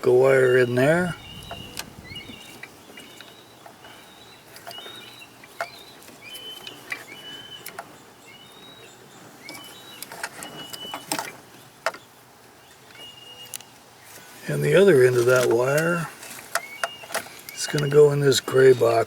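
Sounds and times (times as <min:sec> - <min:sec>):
birds chirping: 0:00.0 - 0:19.0
handling noises and clicks: 0:09.4 - 0:12.1, 0:15.1 - 0:18.0.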